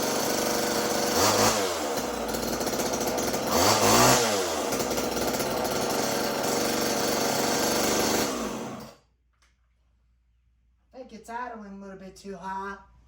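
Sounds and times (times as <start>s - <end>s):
chainsaw engine winding down: 0.0s - 9.0s
chainsaw revving and idling: 0.0s - 9.0s.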